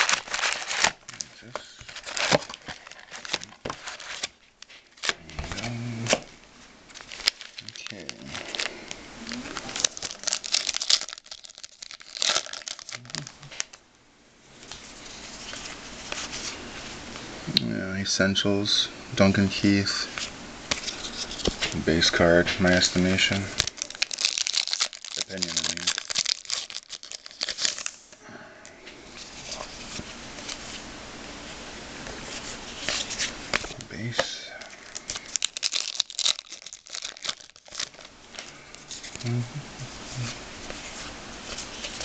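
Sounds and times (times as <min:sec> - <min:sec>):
wrapper crinkling and tearing: 0:00.0 - 0:06.2, 0:06.9 - 0:13.8, 0:22.6 - 0:28.0, 0:32.8 - 0:39.4, 0:40.1 - 0:42.0
handling of cards: 0:00.0 - 0:06.3, 0:06.9 - 0:13.8, 0:20.0 - 0:28.1, 0:29.0 - 0:30.9, 0:32.0 - 0:39.4, 0:40.0 - 0:42.0.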